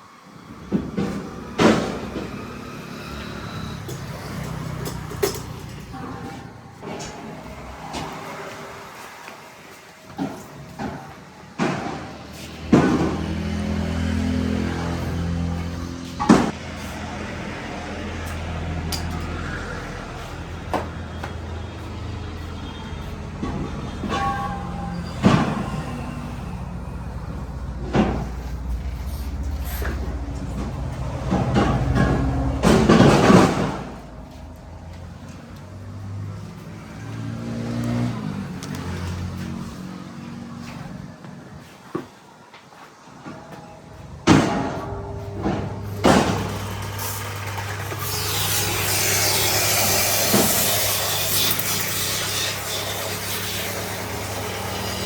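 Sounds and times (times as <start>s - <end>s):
diesel engine running: 12.3s - 41.2s, 43.9s - 48.8s.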